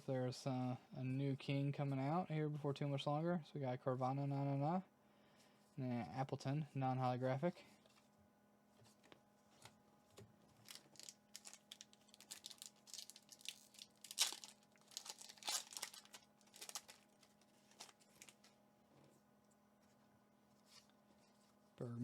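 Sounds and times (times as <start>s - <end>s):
faint steady hum: 0.0s - 22.0s
foil wrapper tearing and crinkling: 10.6s - 18.6s.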